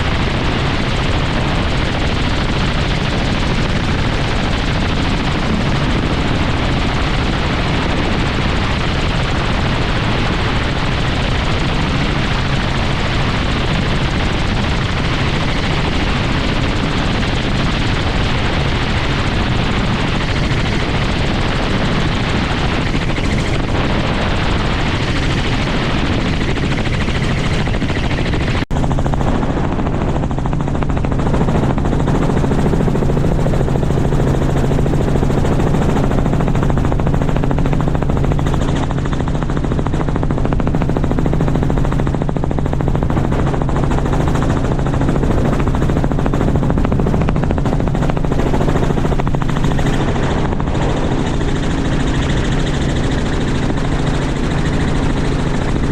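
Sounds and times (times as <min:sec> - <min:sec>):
helicopter rotor and engine: 0:00.0 - 0:55.9
low hum: 0:00.0 - 0:55.9.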